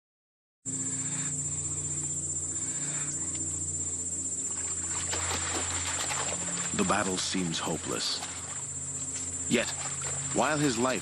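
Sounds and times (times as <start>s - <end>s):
insects chirping: 0.7s - 11.0s
low steady drone: 0.7s - 11.0s.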